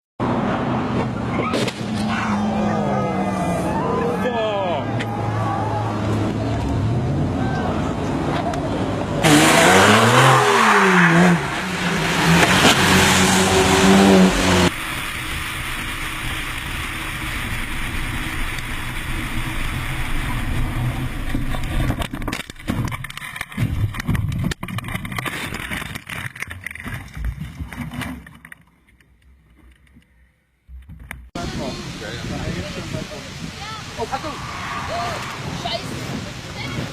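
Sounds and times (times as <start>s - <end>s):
car engine revving: 0.2s - 22.2s
road and tyre noise: 0.2s - 36.9s
knocks and rumbles: 21.2s - 28.4s.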